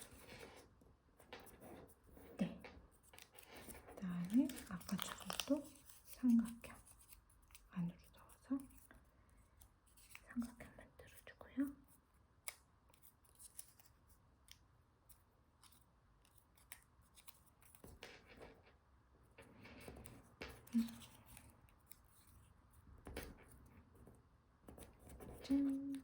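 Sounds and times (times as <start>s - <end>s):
paper being folded and creased: 2.9s - 7.7s, 12.4s - 18.5s.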